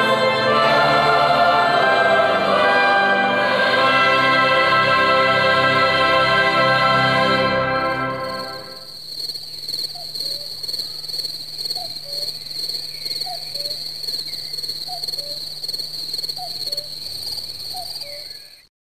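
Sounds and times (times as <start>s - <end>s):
high-pitched insect trill: 8.0s - 18.7s
faint bird chirps: 9.4s - 15.5s, 16.3s - 18.7s.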